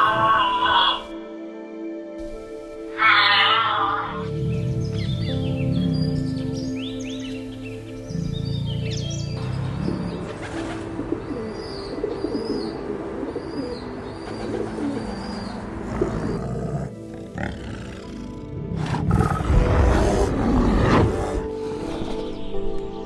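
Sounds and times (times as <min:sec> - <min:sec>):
background music: 0:00.0 - 0:23.0
large animal low call: 0:15.8 - 0:22.2.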